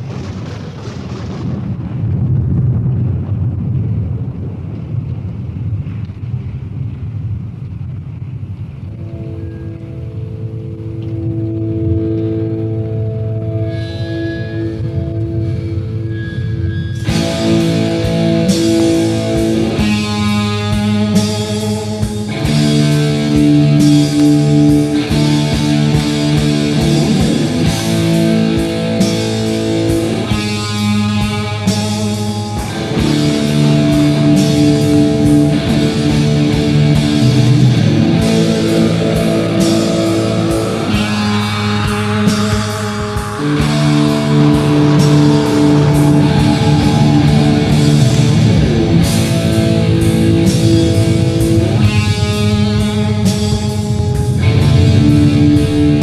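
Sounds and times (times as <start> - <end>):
electric guitar: 0.0 - 56.0
bass: 8.8 - 56.0
drum kit: 17.0 - 56.0.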